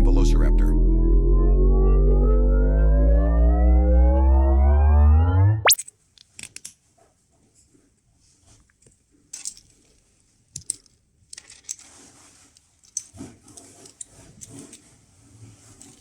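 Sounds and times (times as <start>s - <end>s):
plastic parts clicking and rattling: 8.8s - 12.0s, 12.6s - 14.8s.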